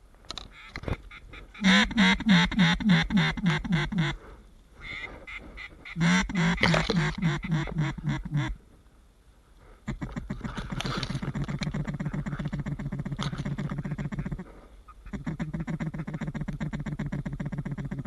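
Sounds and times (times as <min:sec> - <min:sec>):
duck call quacks: 0:01.5 - 0:04.2, 0:04.8 - 0:08.6, 0:11.3 - 0:18.0.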